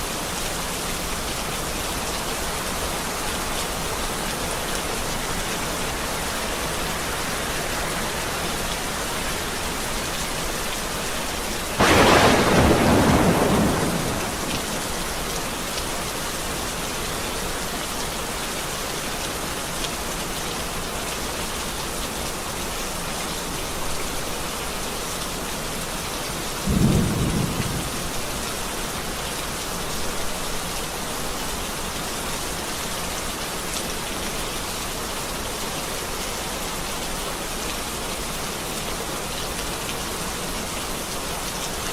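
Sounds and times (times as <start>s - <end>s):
steady rain falling: 0.0s - 41.9s
thunder clap and rumble: 11.8s - 15.3s, 26.7s - 28.3s.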